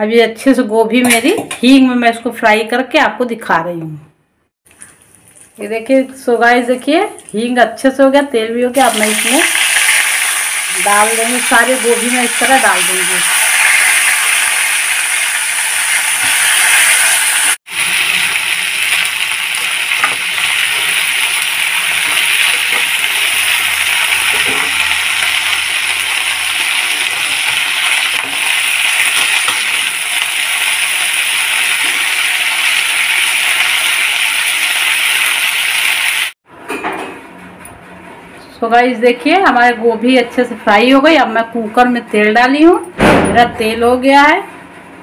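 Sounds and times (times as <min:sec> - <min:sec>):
vegetables sizzling in hot oil: 0:08.8 - 0:36.4.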